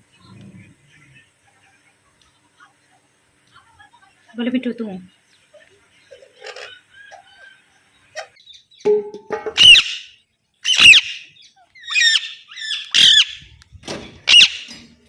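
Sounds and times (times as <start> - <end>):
parrot squawking: 9.5 - 13.5, 14.3 - 14.8.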